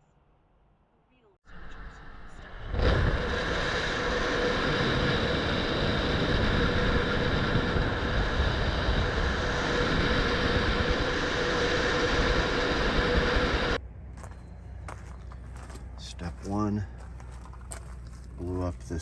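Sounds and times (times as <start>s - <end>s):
machine humming: 1.5s - 16.0s.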